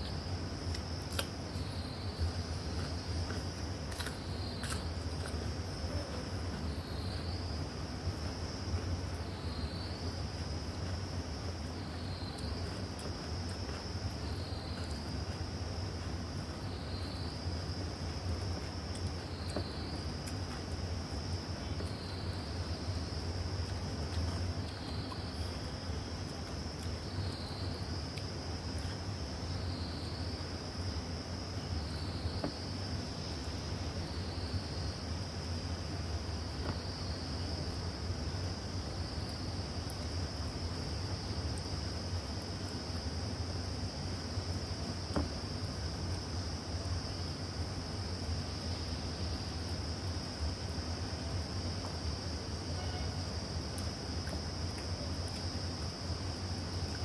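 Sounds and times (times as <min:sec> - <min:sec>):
crickets chirring: 0:00.0 - 0:57.0
high-pitched insect trill: 0:45.3 - 0:57.0.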